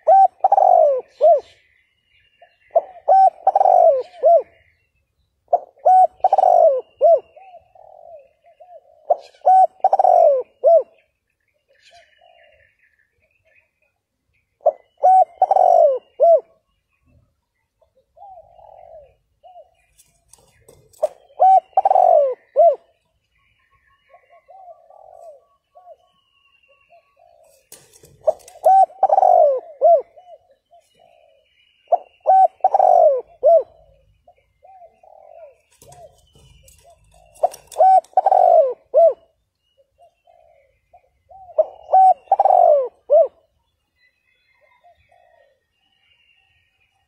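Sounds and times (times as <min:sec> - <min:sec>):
dove cooing: 0:00.0 - 0:01.7, 0:02.4 - 0:04.9, 0:05.5 - 0:11.1, 0:11.9 - 0:12.7, 0:14.6 - 0:16.8, 0:17.8 - 0:43.6, 0:44.5 - 0:45.7.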